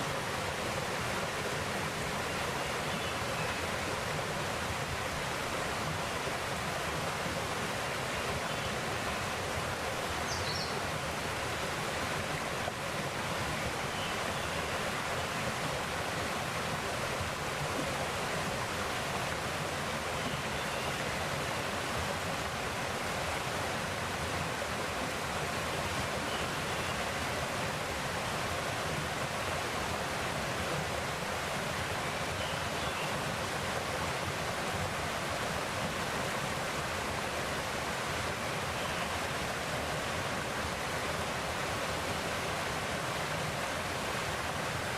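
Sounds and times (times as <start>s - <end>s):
stream rushing over rocks: 0.0s - 44.9s.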